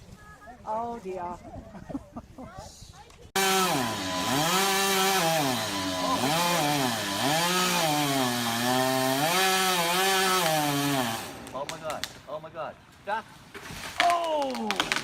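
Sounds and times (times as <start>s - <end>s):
chainsaw revving: 3.4s - 11.6s.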